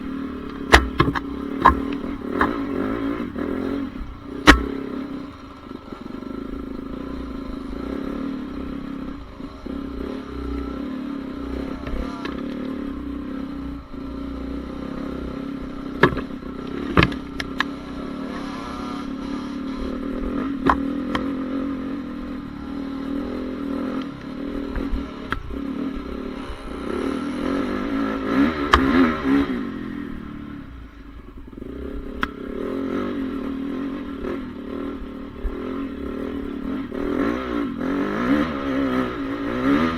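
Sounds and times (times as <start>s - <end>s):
motorcycle engine revving: 0.0s - 39.9s
sharp knocks and clatter: 0.5s - 5.2s.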